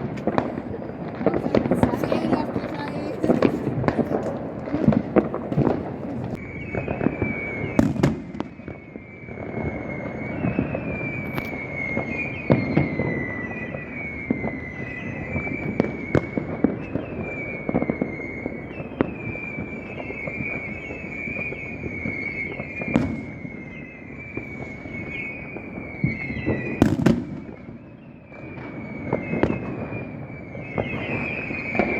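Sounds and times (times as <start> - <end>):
crackling rumble: 0.0 - 8.9
fireworks bangs: 0.0 - 31.9
high falling whistle tone: 6.4 - 31.9.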